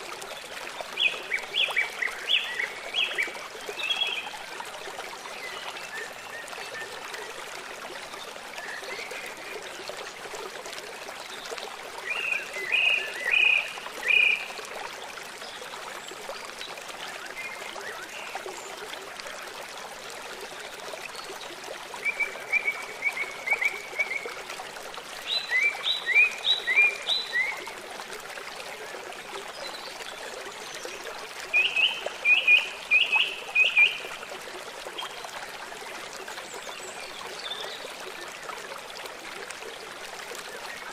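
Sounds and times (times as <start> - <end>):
flowing water rushing: 0.0 - 40.9
songbird singing: 12.0 - 14.5, 25.2 - 27.6, 31.5 - 34.2.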